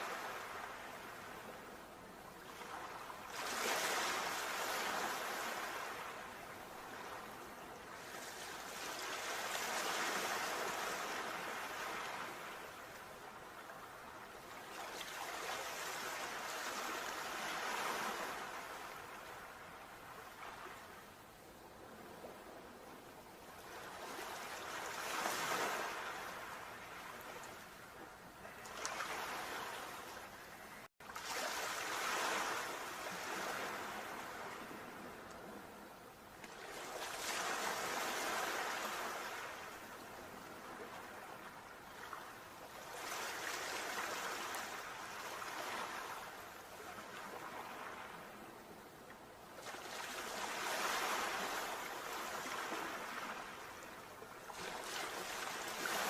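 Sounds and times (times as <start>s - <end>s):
sea waves washing on shore: 0.0s - 56.0s.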